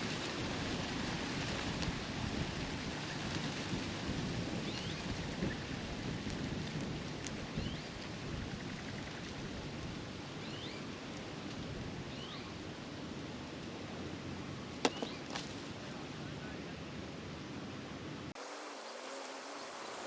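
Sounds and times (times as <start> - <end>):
outdoor hiss: 9.6 - 20.0
bird chirps: 10.4 - 10.9, 12.1 - 12.5.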